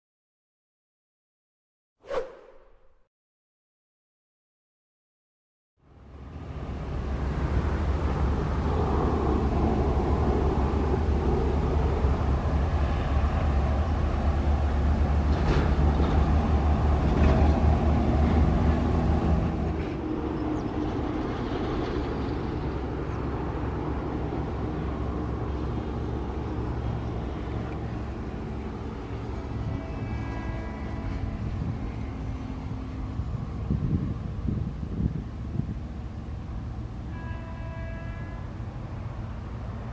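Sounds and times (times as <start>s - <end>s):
diesel train engine rumbling: 5.8s - 39.9s.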